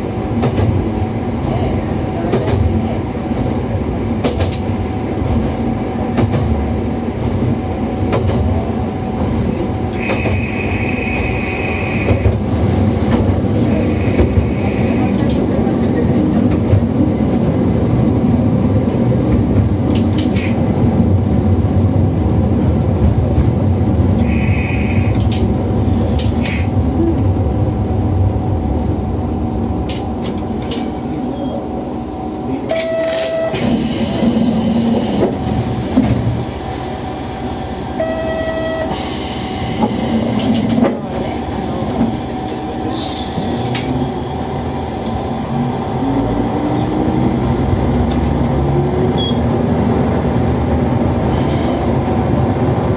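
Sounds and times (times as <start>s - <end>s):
diesel railcar running: 0.0s - 52.9s
air hiss: 38.9s - 40.3s.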